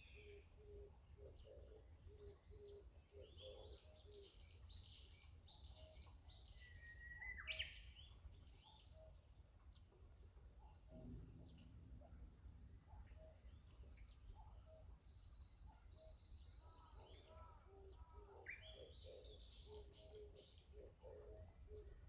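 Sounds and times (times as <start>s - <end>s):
birds chirping and whistling: 2.6s - 9.2s, 12.9s - 22.0s
low steady rumble: 10.8s - 14.2s.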